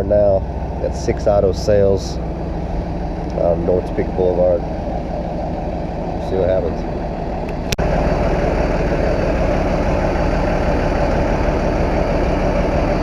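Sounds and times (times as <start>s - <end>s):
car engine idling roughly: 0.0s - 13.0s.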